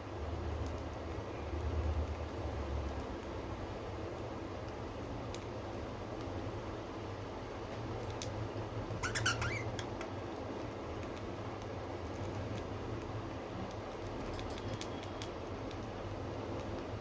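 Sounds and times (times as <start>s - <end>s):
budgie chirp: 9.0s - 10.1s.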